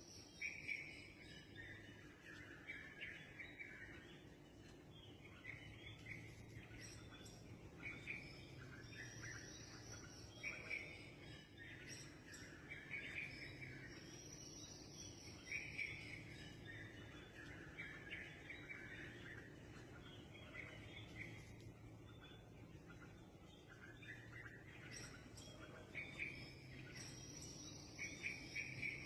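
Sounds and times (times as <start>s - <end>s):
wild birds chirping: 0.0s - 29.0s.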